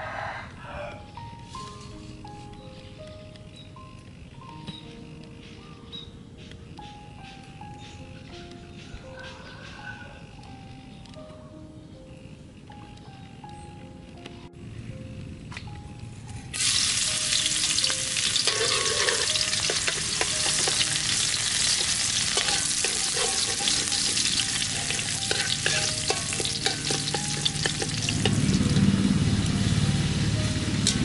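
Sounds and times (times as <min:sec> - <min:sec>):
food sizzling in a wok: 0:16.6 - 0:28.8
spatula scraping a wok: 0:18.1 - 0:28.4.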